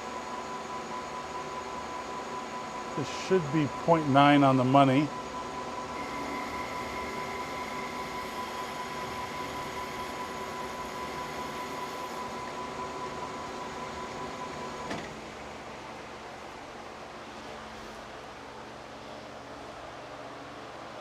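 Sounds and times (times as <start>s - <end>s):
metal lathe whine: 0.0s - 15.8s
lathe machine noise: 2.2s - 15.0s.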